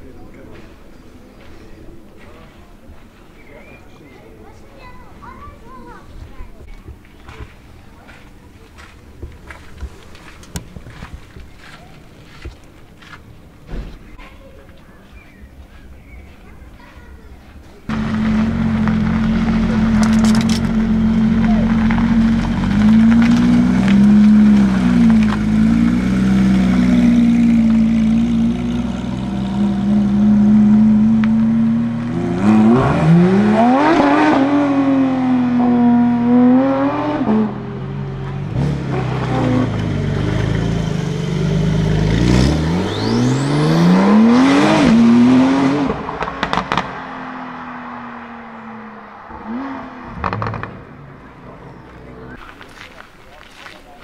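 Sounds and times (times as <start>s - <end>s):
car engine revving: 17.9s - 52.4s.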